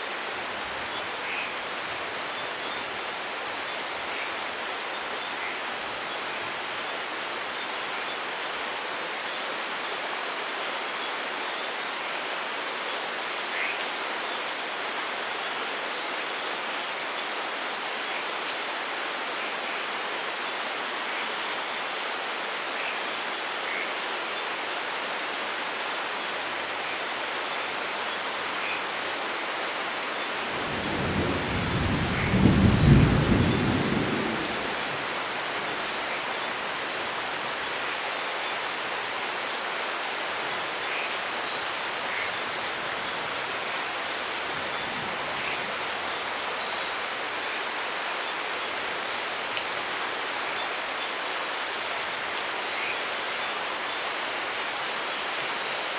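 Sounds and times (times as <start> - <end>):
heavy rain: 0.0 - 55.9
thunder rolling: 30.6 - 35.1.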